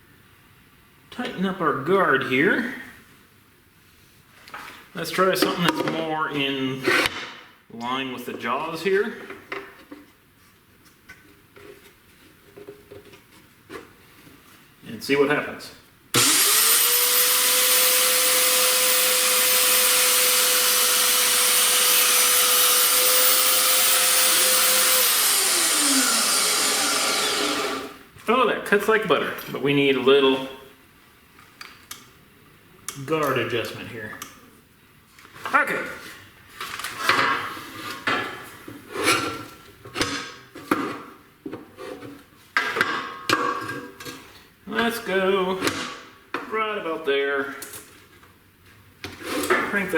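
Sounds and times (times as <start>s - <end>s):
band saw cutting wood: 16.2s - 28.0s.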